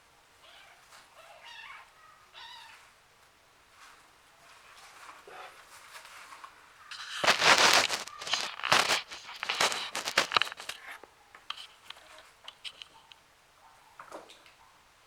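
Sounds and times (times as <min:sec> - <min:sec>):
crinkling and rustling: 0:02.6 - 0:13.2
scattered clicks: 0:07.0 - 0:13.1.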